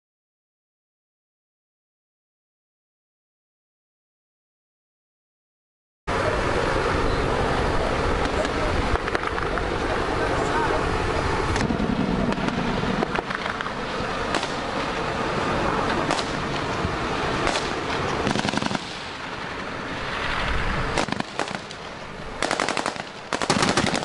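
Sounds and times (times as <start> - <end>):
gunfire single shots: 16.1 - 16.4, 17.4 - 19.0, 21.0 - 21.8, 22.4 - 24.0
automatic gunfire bursts: 17.4 - 19.0, 21.0 - 21.7, 22.4 - 24.0.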